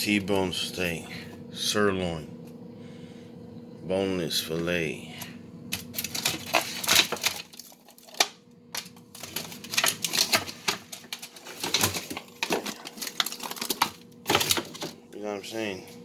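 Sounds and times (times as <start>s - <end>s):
packages clicking and crinkling: 5.7s - 15.0s.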